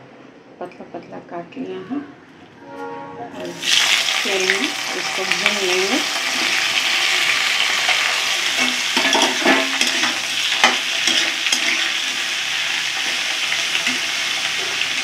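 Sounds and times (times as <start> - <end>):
vegetables sizzling in hot oil: 3.5 - 15.0
metal spatula scraping a pan: 7.8 - 12.4.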